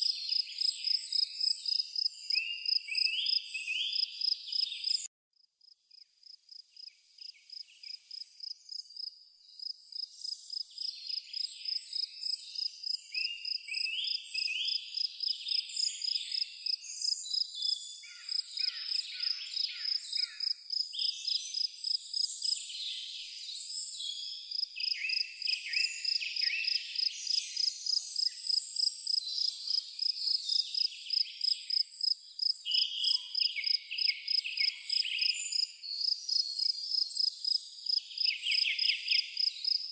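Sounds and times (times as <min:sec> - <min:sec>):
birds chirping and trilling: 0:00.0 - 0:05.1, 0:07.2 - 0:39.9
cricket chirping: 0:00.3 - 0:03.4, 0:04.0 - 0:05.0, 0:05.6 - 0:14.1, 0:14.7 - 0:23.0, 0:24.1 - 0:39.9.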